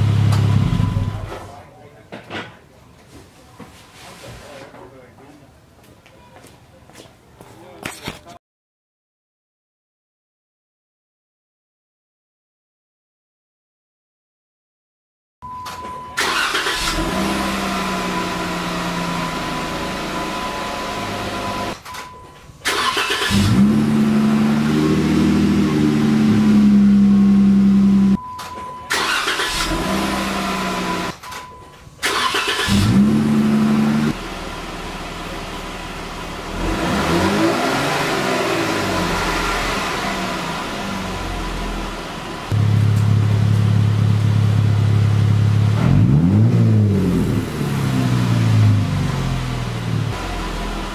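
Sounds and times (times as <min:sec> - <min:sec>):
car engine revving: 0:16.3 - 0:21.8, 0:22.7 - 0:28.2, 0:32.2 - 0:50.9.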